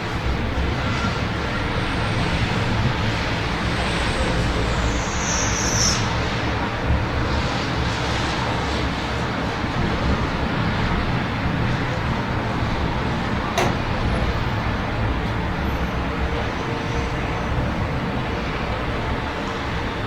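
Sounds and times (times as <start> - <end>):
city traffic rumble: 0.0 - 20.0
sharp click: 13.6 - 14.0.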